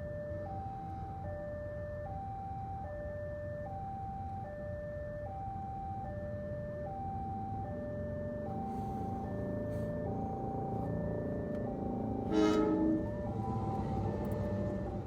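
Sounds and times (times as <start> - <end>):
level crossing two-tone alarm: 0.0 - 15.0
road traffic rumble: 4.1 - 15.0.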